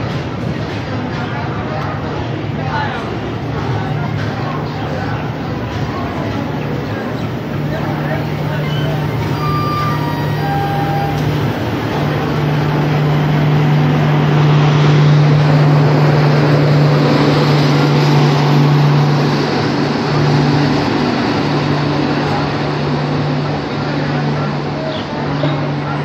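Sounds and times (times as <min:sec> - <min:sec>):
train coaches rolling past: 0:00.0 - 0:26.0.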